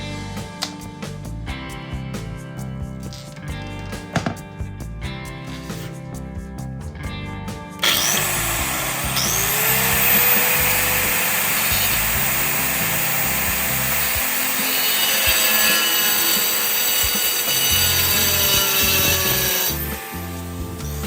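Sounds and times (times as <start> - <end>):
background music: 0.0 - 21.0
wet tile saw cutting: 7.8 - 21.0.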